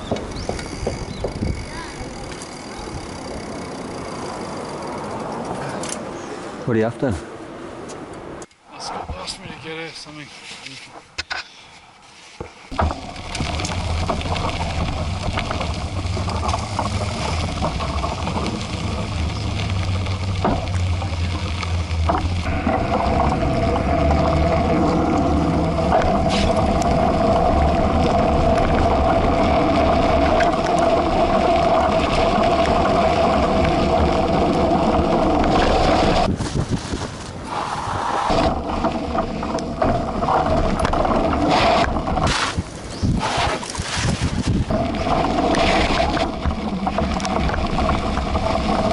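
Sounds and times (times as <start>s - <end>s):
wind rumbling over microphone: 0.0s - 3.7s, 12.7s - 48.9s
bike tyres rolling on pavement: 0.0s - 6.7s, 12.1s - 48.9s
steady hum: 12.7s - 36.3s.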